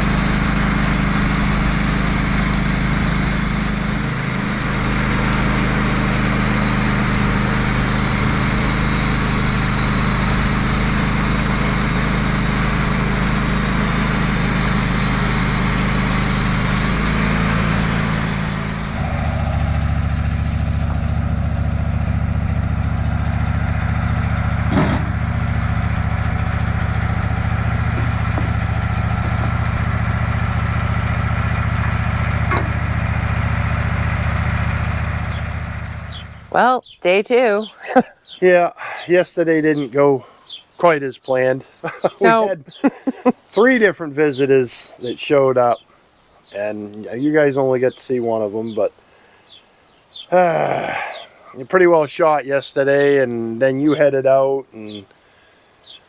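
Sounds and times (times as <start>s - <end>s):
hiss: 0.0s - 19.5s
sawmill engine running: 0.0s - 36.8s, 37.4s - 45.8s, 46.6s - 48.8s, 50.3s - 55.0s.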